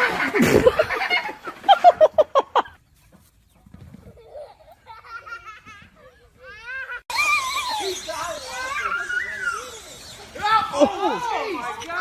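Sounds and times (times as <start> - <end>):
wavering animal trills: 7.1 - 11.8
animal calls: 7.1 - 11.9.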